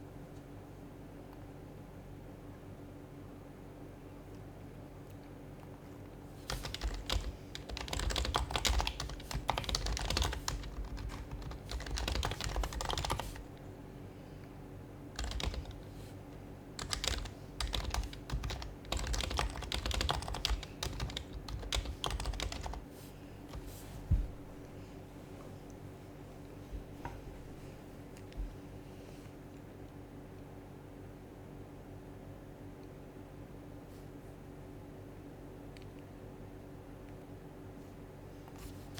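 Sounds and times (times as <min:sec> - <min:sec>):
soft muffled keyboard typing: 0:04.3 - 0:13.7, 0:15.1 - 0:24.4.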